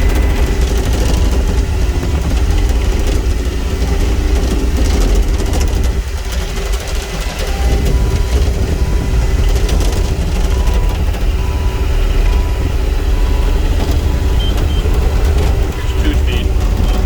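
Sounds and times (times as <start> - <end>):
excavator diesel engine running: 0.0 - 17.0
faint repeating beep: 14.3 - 15.0, 15.7 - 17.0.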